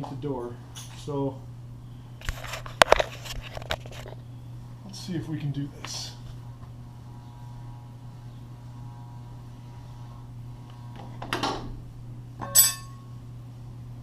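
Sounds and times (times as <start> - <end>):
sharp metallic clink: 12.4 - 13.1.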